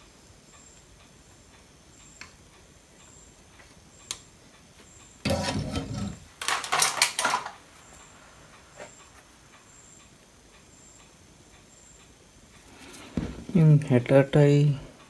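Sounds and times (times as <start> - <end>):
small hard objects clattering: 5.3 - 7.6.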